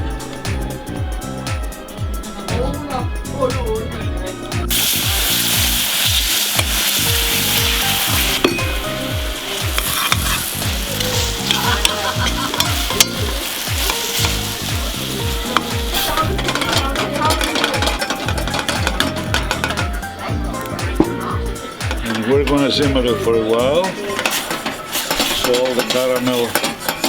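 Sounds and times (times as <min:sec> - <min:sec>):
background music with steady beat: 0:00.0 - 0:27.0
sugar sizzling in a pan: 0:04.7 - 0:19.8, 0:24.1 - 0:27.0
utensil clicking against pan: 0:09.6 - 0:19.9, 0:24.2 - 0:27.0.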